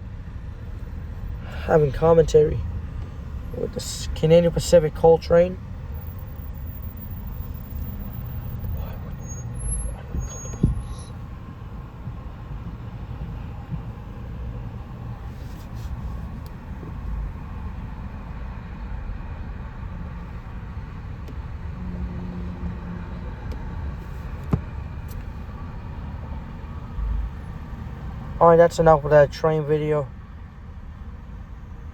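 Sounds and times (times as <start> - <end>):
train rumbling: 7.7 - 17.9.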